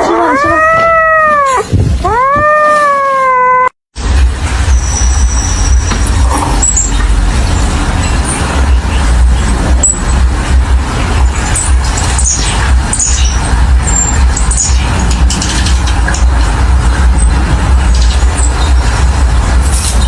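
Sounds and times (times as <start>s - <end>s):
cat meowing: 0.0s - 3.8s
low rumbling noise: 0.0s - 20.0s.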